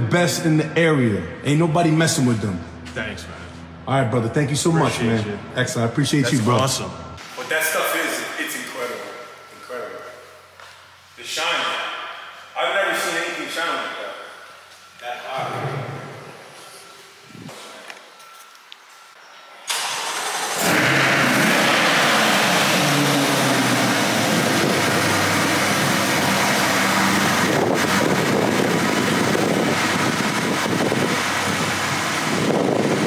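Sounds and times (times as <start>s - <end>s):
car engine starting and idling: 19.7s - 33.0s.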